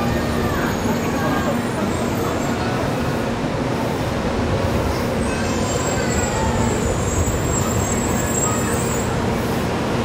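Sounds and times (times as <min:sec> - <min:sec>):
train rumble: 0:00.0 - 0:10.0.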